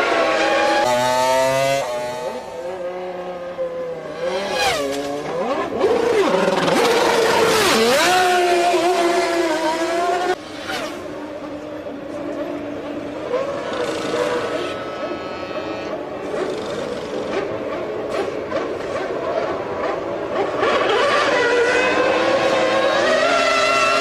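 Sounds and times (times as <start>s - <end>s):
racing car engine revving: 0.0s - 3.3s, 4.0s - 11.1s, 16.2s - 24.0s.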